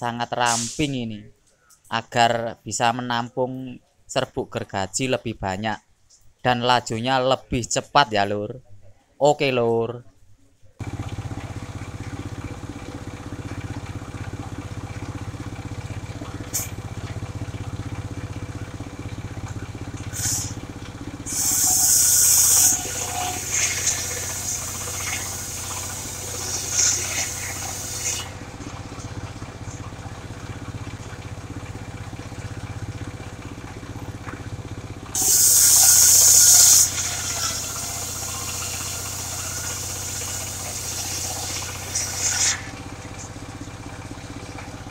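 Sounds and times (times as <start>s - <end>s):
sawmill engine running: 10.8s - 44.9s
circular saw blade cutting wood: 20.0s - 20.6s, 21.2s - 28.4s, 35.1s - 43.3s.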